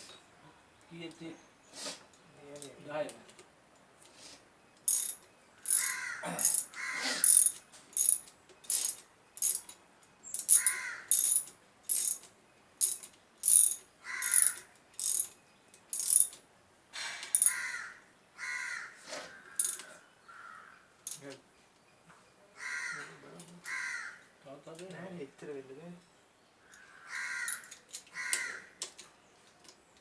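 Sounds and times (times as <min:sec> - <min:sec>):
ratchet wrench clicking: 0:04.8 - 0:16.4, 0:17.2 - 0:17.6, 0:19.6 - 0:19.9, 0:27.4 - 0:29.0
crows cawing: 0:05.6 - 0:07.5, 0:10.5 - 0:11.3, 0:14.0 - 0:14.8, 0:17.4 - 0:21.0, 0:22.6 - 0:24.4, 0:26.6 - 0:28.8.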